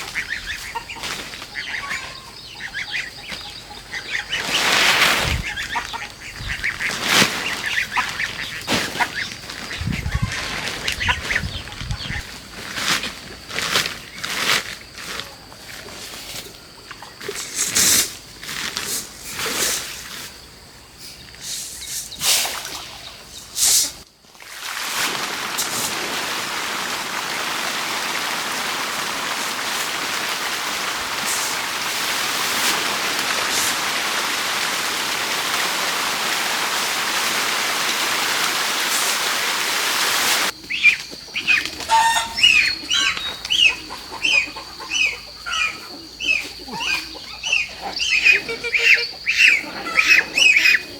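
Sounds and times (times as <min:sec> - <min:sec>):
birds chirping rapidly: 0:00.0 - 0:12.3
steady hiss: 0:17.2 - 0:40.6.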